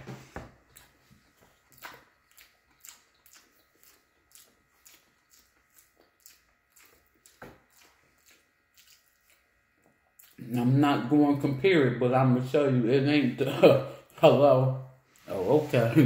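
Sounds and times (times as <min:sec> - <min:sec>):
close-up chewing with mouth clicks: 0:00.5 - 0:10.6.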